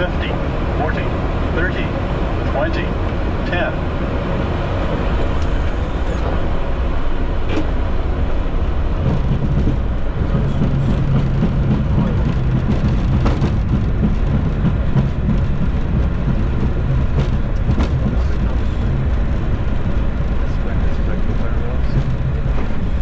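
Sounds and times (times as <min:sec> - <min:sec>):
low hum: 0:00.0 - 0:23.0
low rumble of idling engines: 0:00.0 - 0:23.0.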